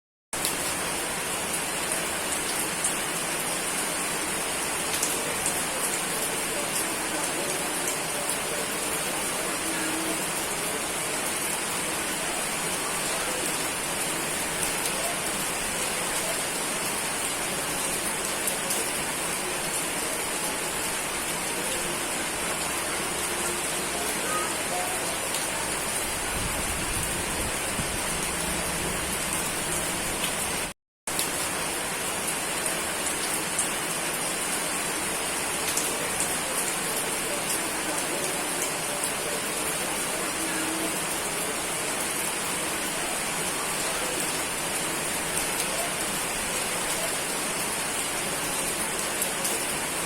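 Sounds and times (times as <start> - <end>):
dense rain falling: 0.4 - 50.0.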